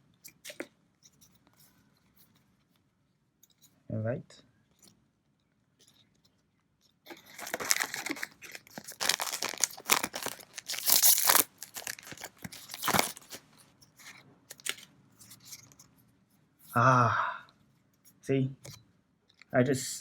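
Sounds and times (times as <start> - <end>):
foil wrapper crinkling and tearing: 7.1 - 13.6, 14.5 - 15.6.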